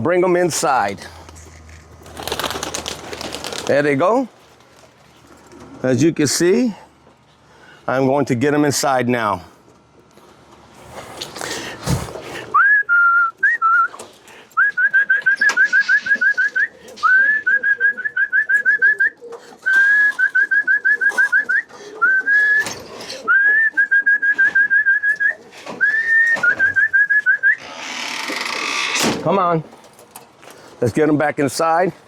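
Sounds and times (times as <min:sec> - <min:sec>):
person whistling: 0:12.5 - 0:14.0, 0:14.6 - 0:22.7, 0:23.3 - 0:27.6.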